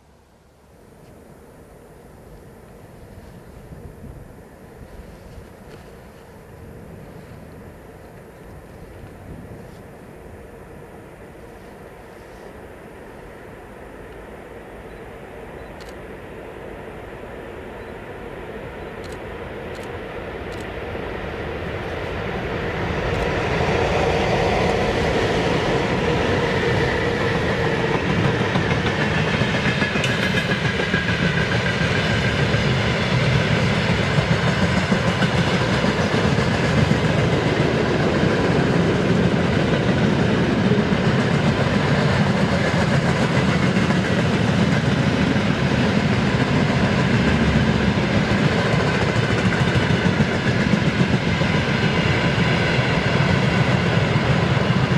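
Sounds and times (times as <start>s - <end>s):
freight train rumbling past: 0.0s - 54.9s.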